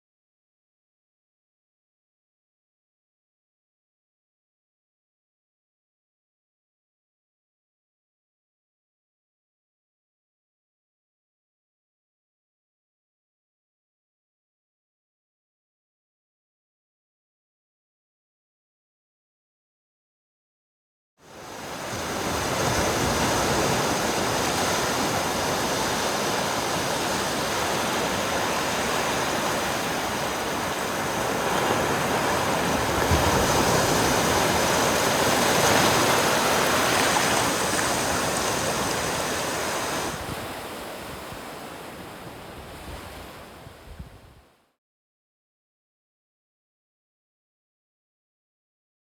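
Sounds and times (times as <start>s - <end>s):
surf washing onto beach: 21.3s - 44.2s.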